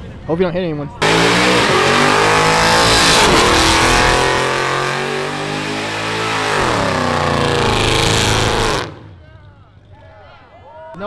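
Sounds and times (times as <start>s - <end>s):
car engine revving: 1.0s - 9.1s.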